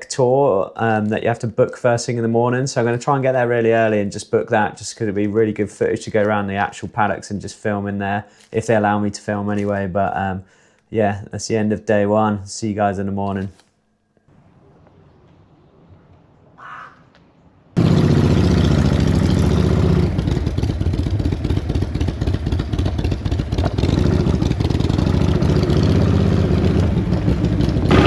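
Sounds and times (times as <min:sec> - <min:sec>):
motorcycle engine starting and idling: 0:17.8 - 0:28.0.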